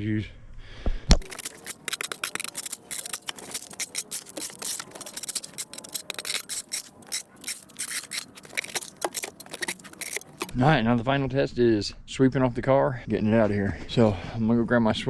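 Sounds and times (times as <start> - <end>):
ice being scraped: 1.2 - 10.6.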